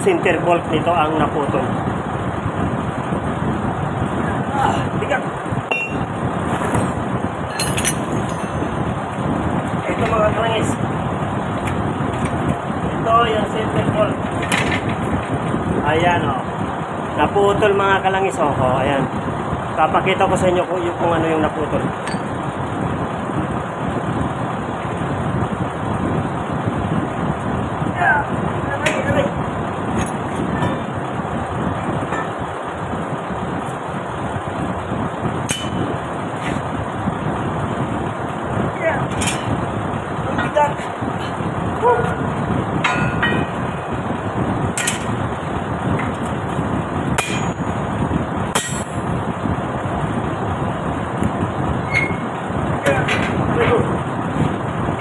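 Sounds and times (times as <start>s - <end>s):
truck engine running: 0.0s - 55.0s
sharp metal strikes: 7.5s - 8.8s, 35.4s - 35.9s, 44.8s - 45.2s, 47.2s - 47.7s, 48.5s - 49.1s.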